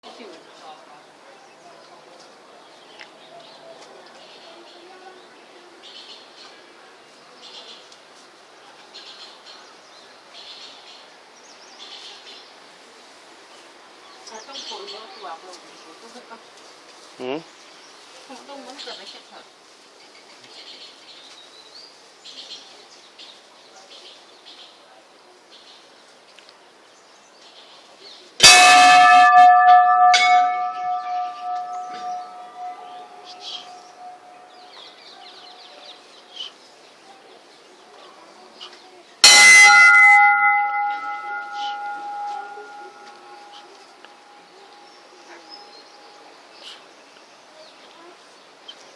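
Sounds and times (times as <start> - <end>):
metal bell ringing: 28.4 - 34.5, 39.2 - 43.8
bird high call: 28.4 - 35.8, 39.2 - 45.9.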